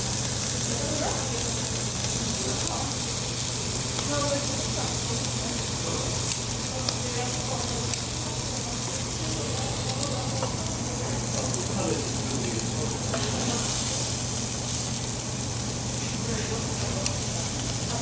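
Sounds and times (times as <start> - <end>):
meat sizzling on a grill: 0.0 - 18.0.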